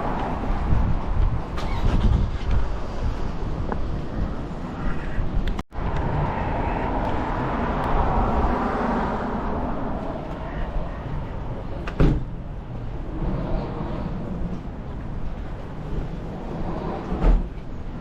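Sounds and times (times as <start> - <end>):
wind rumbling on microphone: 0.0 - 18.0
vehicle passing: 5.8 - 11.8.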